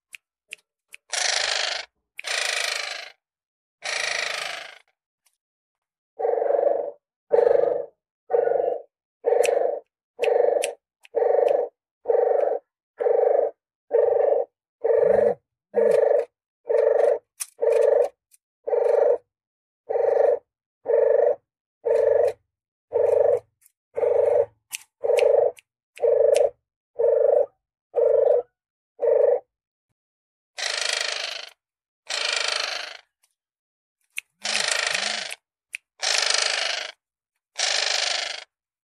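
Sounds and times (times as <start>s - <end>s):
dove cooing: 6.2s - 19.2s, 19.9s - 29.4s.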